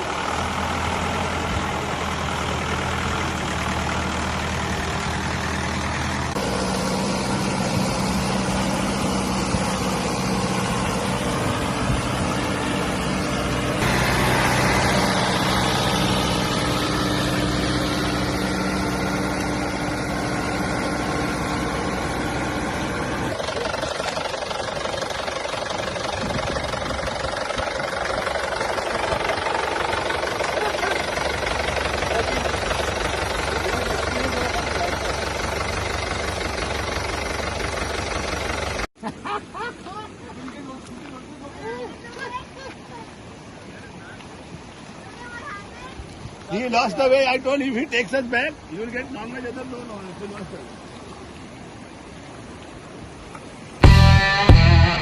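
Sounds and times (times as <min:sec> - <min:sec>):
tractor engine running: 0:00.0 - 0:38.9, 0:53.8 - 0:55.0.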